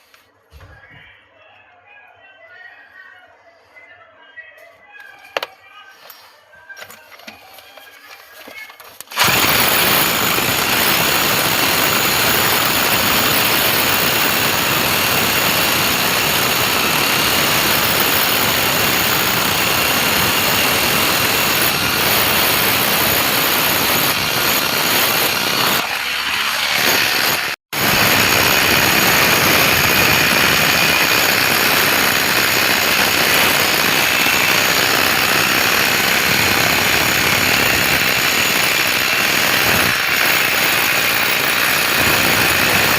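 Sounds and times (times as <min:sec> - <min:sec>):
loud machine noise: 0:09.1 - 0:42.9.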